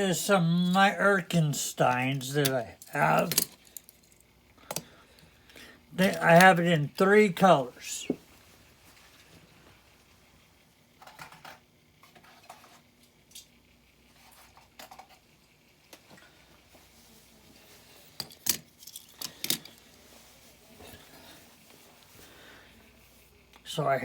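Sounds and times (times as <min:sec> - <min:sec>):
toy cars clicking and tapping: 0:02.4 - 0:04.9, 0:18.2 - 0:19.8.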